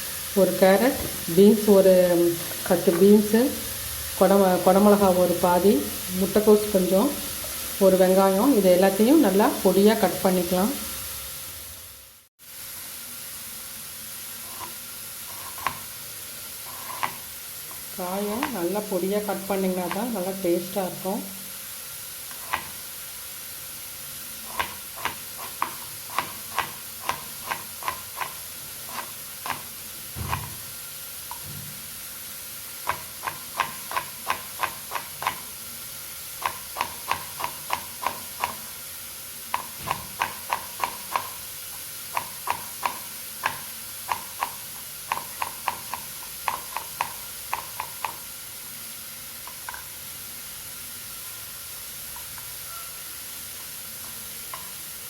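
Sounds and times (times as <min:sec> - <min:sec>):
knife chopping on cutting board: 0:24.5 - 0:30.6, 0:36.4 - 0:38.6.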